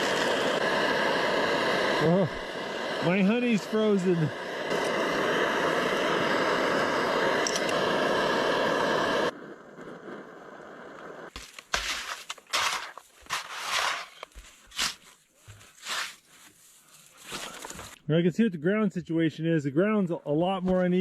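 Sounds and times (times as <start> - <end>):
footsteps crunching in snow: 11.3 - 18.0.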